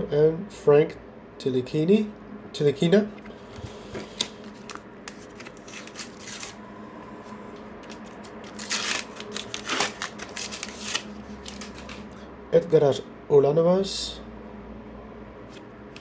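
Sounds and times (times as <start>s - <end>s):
paper wrapper crinkling and rustling: 4.0s - 6.6s, 7.8s - 12.1s
wrapper ripping: 4.6s - 6.6s, 7.8s - 12.0s.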